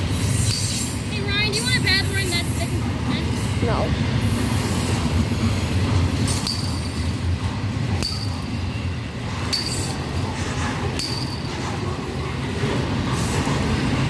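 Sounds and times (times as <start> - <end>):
train wheels rumbling on rail: 0.0 - 14.0
sharp metallic clinks: 6.3 - 7.4, 8.0 - 11.8.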